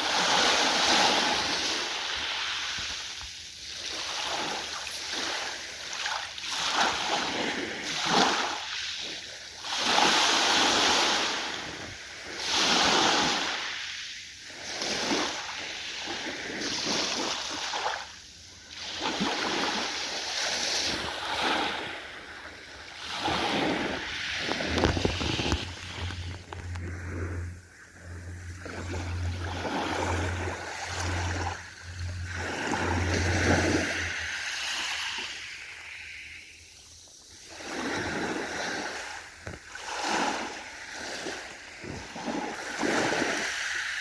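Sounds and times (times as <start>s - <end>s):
ocean waves breaking: 0.0s - 44.0s
low hum: 23.4s - 37.1s.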